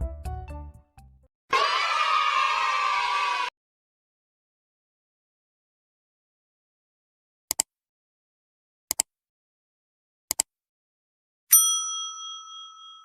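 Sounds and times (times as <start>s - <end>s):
bright bell ding: 11.5s - 13.0s.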